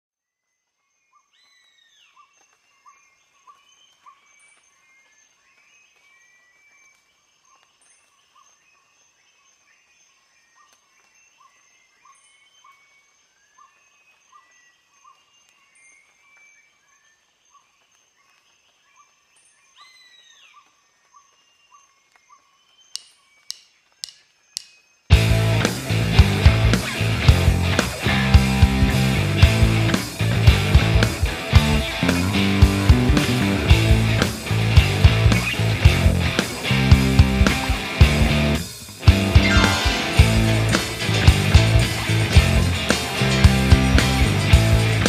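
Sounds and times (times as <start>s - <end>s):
faint birdsong: 0.2s - 45.0s
sharp clicks: 22.9s - 24.8s
bird repeating short note: 39.4s - 40.4s.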